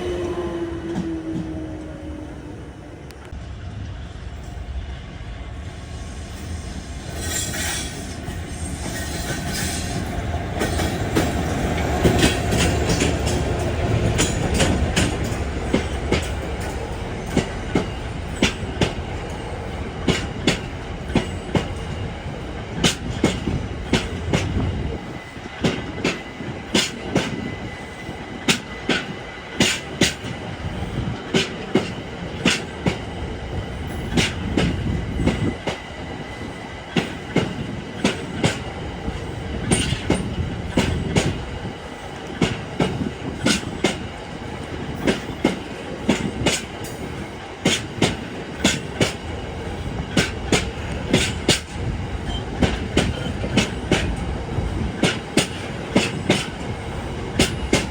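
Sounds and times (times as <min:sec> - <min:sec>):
train rumbling past: 0:00.0 - 0:57.9
wheels clicking over rail joints: 0:37.0 - 0:41.4, 0:50.0 - 0:57.9.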